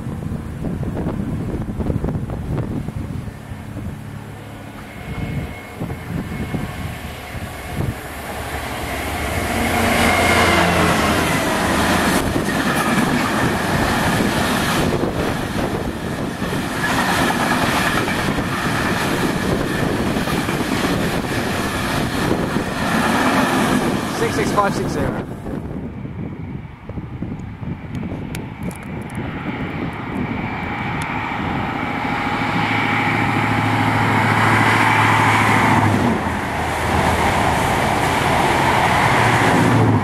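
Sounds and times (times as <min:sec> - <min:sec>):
train engine low rumble: 0:00.0 - 0:40.0
wheels rushing on rails: 0:00.0 - 0:40.0
wheels clicking over rail joints: 0:11.6 - 0:24.4.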